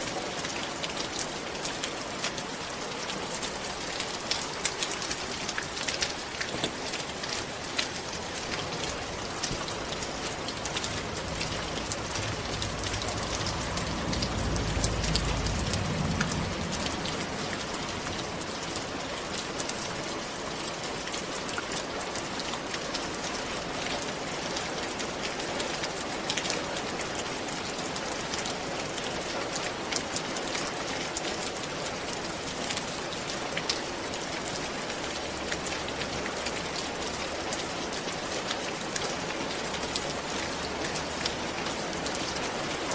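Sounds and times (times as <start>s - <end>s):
rain falling on a roof: 0.0s - 42.9s
low rumble: 9.2s - 19.0s.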